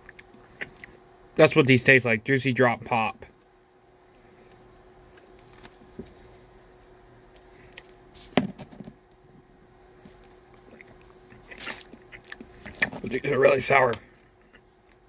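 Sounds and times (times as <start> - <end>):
faint steady hum: 0.0 - 15.0
mouth sucking on candy: 10.8 - 12.8.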